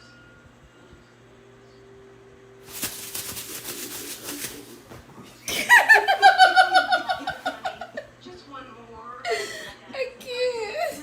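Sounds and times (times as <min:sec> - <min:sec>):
scratchy noise: 0:02.7 - 0:04.9.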